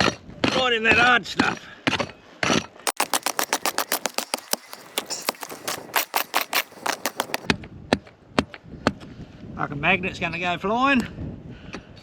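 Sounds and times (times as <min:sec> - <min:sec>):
pick chipping into hard ground: 0:02.9 - 0:07.5.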